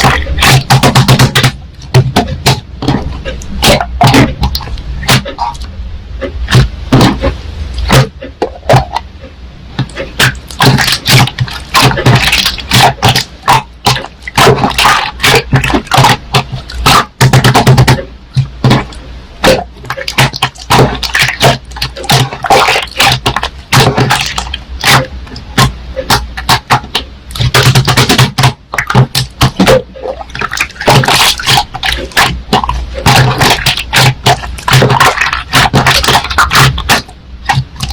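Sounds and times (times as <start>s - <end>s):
slime squeezed sticky wet pops: 9.9s - 18.0s, 18.6s - 37.9s.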